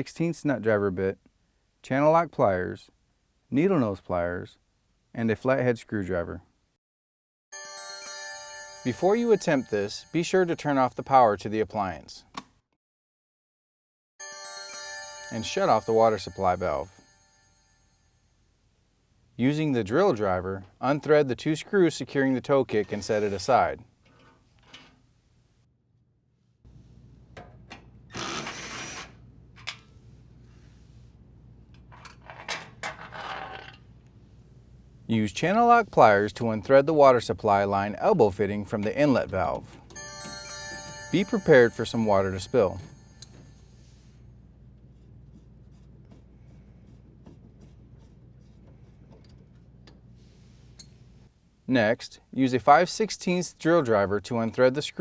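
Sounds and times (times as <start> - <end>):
cordless drill running: 28.1 - 29.2.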